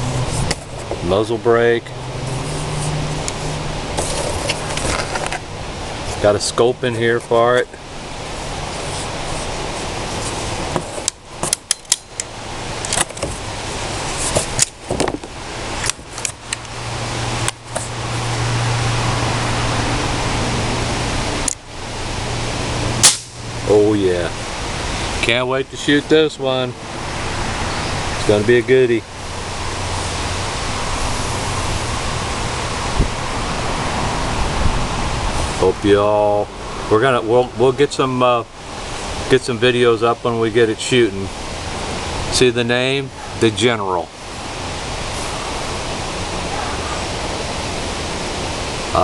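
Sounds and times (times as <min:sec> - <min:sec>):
low hum: 0:00.0 - 0:25.8
steady background hiss: 0:00.0 - 0:49.0
steady rushing noise: 0:00.0 - 0:49.0.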